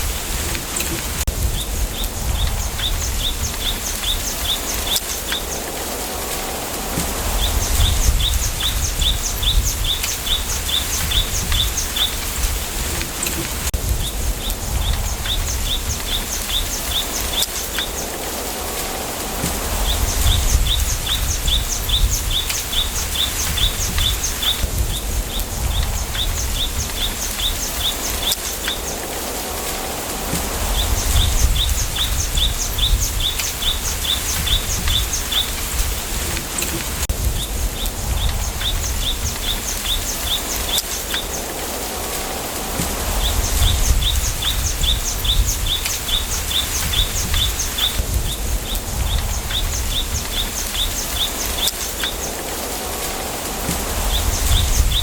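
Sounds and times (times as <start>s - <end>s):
low wind rumble: 0.0s - 55.0s
wind hissing in bamboo: 0.0s - 55.0s
bird chirping: 42.8s - 52.4s.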